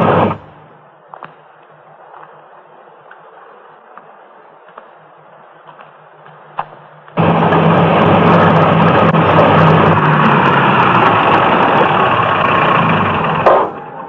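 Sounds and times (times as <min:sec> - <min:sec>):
vehicle engine running loudly: 0:00.0 - 0:00.7, 0:07.2 - 0:14.0.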